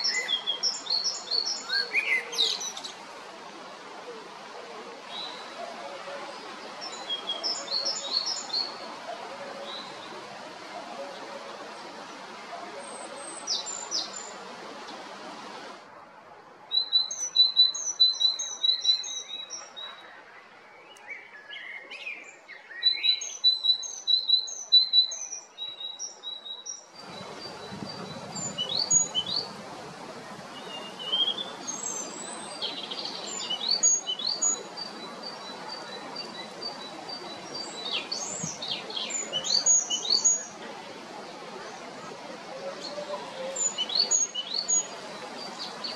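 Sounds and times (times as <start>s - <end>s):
background hiss: 0.0s - 19.8s, 23.2s - 45.9s
great tit singing: 22.8s - 29.6s, 30.4s - 40.6s, 43.6s - 45.9s.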